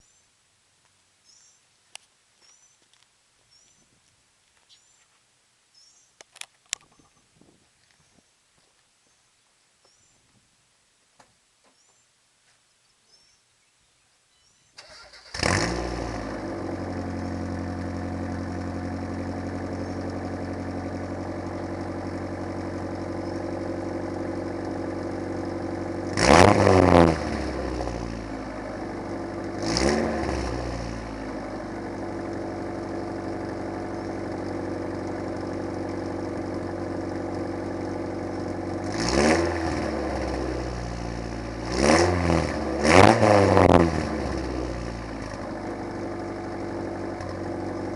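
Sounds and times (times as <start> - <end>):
car engine idling and revving: 14.8 - 47.9.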